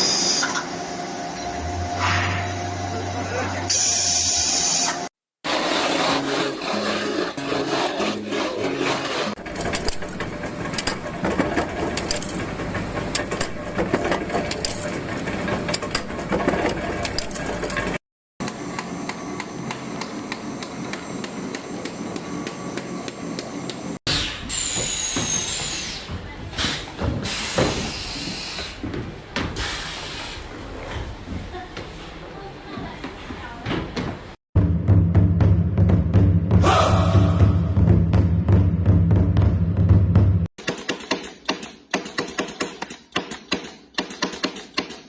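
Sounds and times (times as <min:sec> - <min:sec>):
scraping and rubbing: 0:05.4 - 0:10.4.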